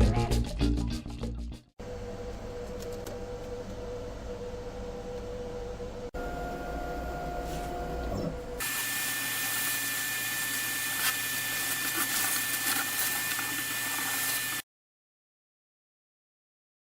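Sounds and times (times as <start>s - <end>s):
low motor hum: 1.8s - 8.6s.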